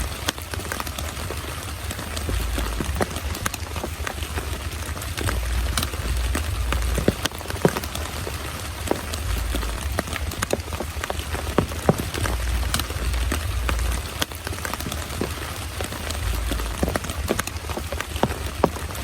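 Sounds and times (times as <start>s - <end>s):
close raindrops striking sharply: 0.0s - 19.0s
heavy rain falling: 0.0s - 19.0s
low rumble: 2.2s - 7.8s, 9.0s - 14.2s, 16.0s - 17.6s.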